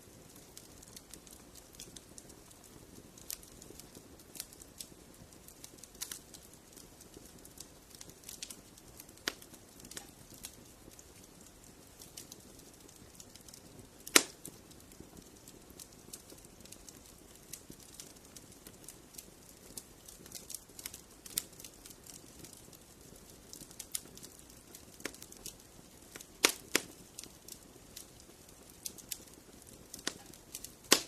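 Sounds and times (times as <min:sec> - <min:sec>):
wood fire crackling: 0:00.0 - 0:31.0
loud pop from fire: 0:13.3 - 0:14.6, 0:26.1 - 0:27.3, 0:29.9 - 0:31.0.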